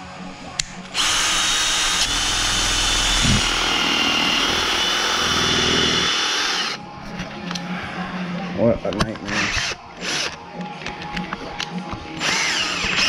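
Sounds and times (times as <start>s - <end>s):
electric drill boring under load: 0.8s - 6.8s, 9.4s - 10.4s, 12.2s - 13.0s.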